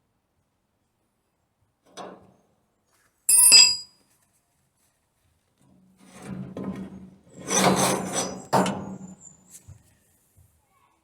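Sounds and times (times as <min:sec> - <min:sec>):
metallic clank ringing: 0:03.3 - 0:03.9
scraping on metal: 0:06.0 - 0:09.6.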